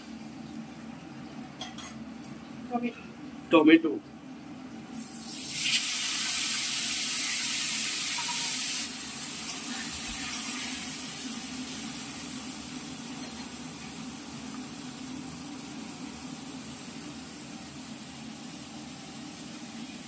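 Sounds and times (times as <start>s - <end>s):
tomatoes sizzling in hot oil: 4.9s - 15.0s.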